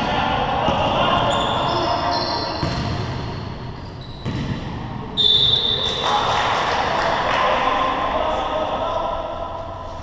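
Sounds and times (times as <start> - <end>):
players' voices: 0.0 - 3.6, 4.3 - 10.0
basketball bouncing on court: 2.6 - 3.3, 4.1 - 4.8.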